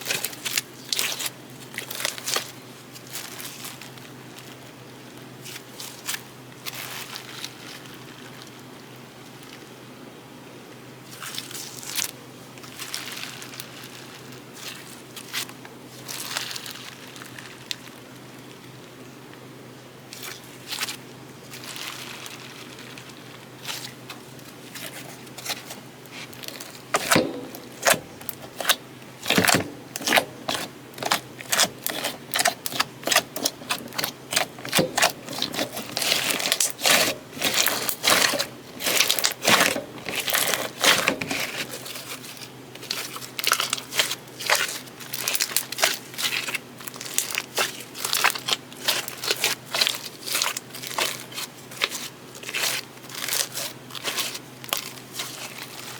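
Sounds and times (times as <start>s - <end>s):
slime crackling and popping: 0.0s - 4.6s, 20.2s - 55.9s.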